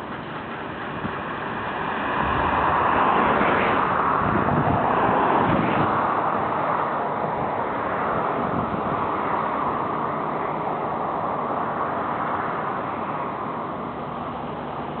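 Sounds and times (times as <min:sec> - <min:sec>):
heavy machinery running: 0:00.0 - 0:05.6.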